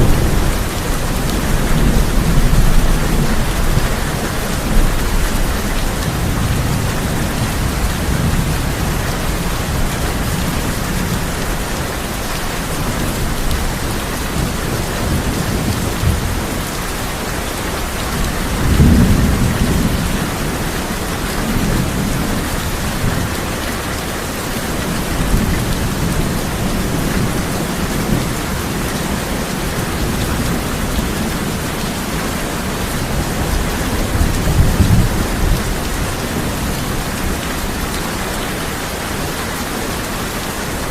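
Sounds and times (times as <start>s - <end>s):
thunder rumbling: 0.0s - 23.4s
heavy rain on a tin roof: 0.0s - 40.9s.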